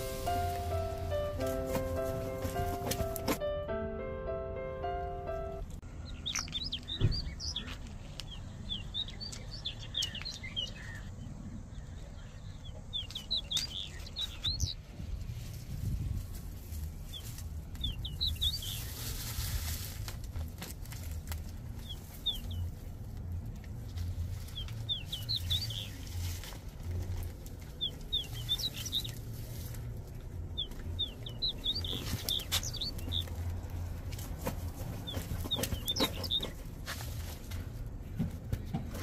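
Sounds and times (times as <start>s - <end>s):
foliage and soil rustling: 0.0s - 3.4s, 12.9s - 38.1s
small bird chirping: 6.0s - 14.8s, 17.1s - 19.1s, 21.8s - 22.8s, 24.5s - 26.2s, 27.7s - 29.6s, 30.5s - 33.4s, 35.0s - 36.6s.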